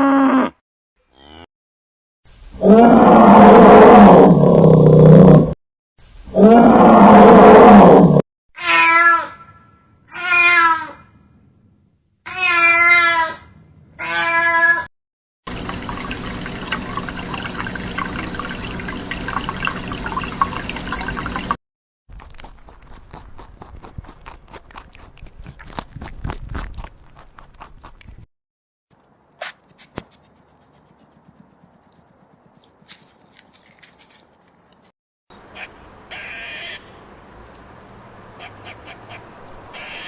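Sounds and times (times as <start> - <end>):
wavering animal calls: 35.6 - 36.9, 38.4 - 40.0.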